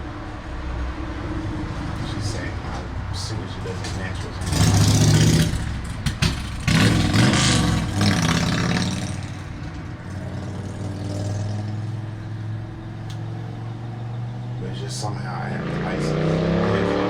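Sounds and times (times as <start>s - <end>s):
vehicle engine idling: 0.0s - 16.0s
indistinct voices: 14.6s - 17.0s.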